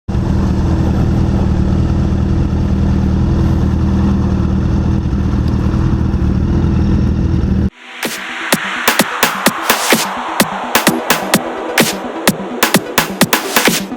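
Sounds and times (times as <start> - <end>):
motorcycle engine running: 0.1 - 7.7
electronic dance music: 7.7 - 13.9.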